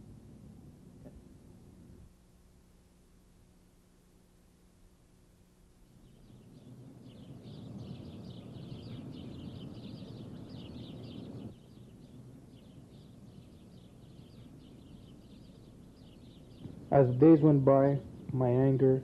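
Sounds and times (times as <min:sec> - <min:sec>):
low outdoor rumble: 0:00.0 - 0:19.0
birds chirping: 0:05.8 - 0:19.0.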